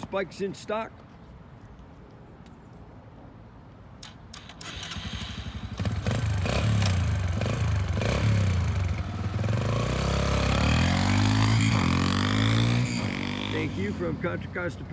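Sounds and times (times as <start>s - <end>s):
engine clicks: 4.0s - 5.9s
small engine starting and running: 4.0s - 14.0s.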